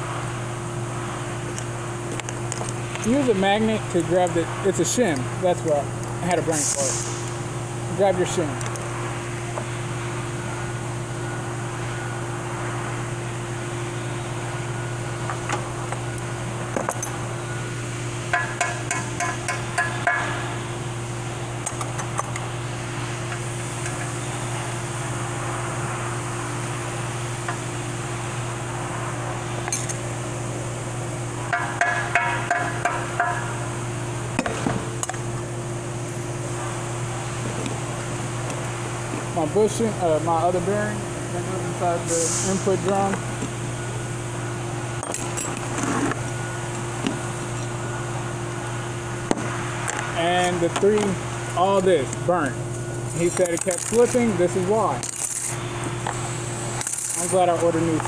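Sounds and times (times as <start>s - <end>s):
steady background hum: 0.0s - 58.0s
metal parts clinking: 45.0s - 45.8s, 53.1s - 54.3s, 55.0s - 55.6s, 56.8s - 57.6s.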